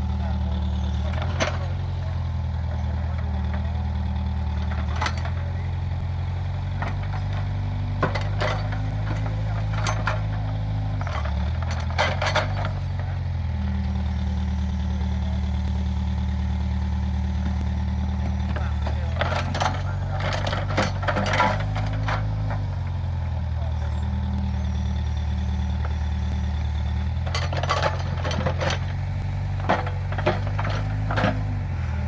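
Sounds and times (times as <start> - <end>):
diesel engine running: 0.0 - 32.0
sharp knocks and clanks: 6.7 - 12.8, 18.3 - 22.8, 27.2 - 31.6.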